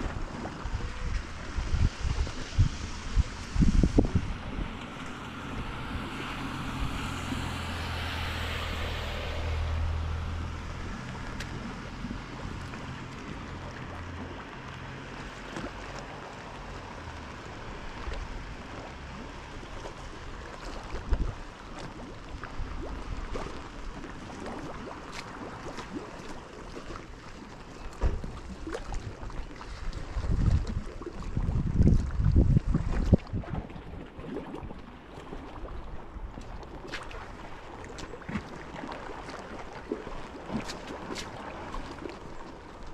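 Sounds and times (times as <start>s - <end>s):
rain: 0.0s - 26.1s
engine humming: 2.8s - 21.7s.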